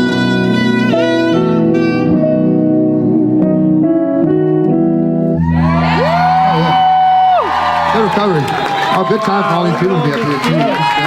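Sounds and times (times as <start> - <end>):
saxophone solo: 0.0 - 4.0
sustained keyboard chords: 0.0 - 10.2
crowd cheering: 5.4 - 11.0.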